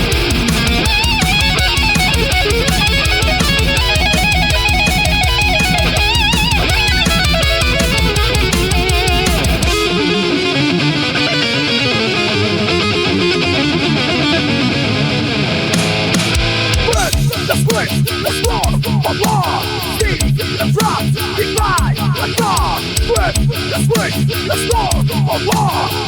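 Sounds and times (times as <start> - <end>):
pounding drum beat: 0.0 - 10.1, 15.8 - 26.0
bass: 0.0 - 10.8, 15.0 - 26.0
electric guitar: 0.0 - 26.0.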